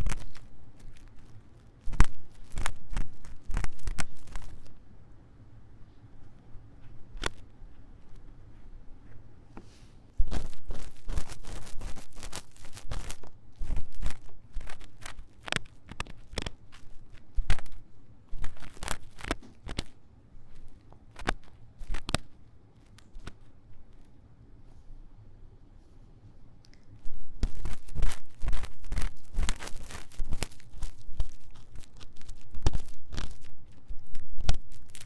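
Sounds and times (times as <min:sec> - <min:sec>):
tool scratching microphone ear: 0:00.0 - 0:04.7, 0:10.2 - 0:23.5, 0:27.0 - 0:35.0.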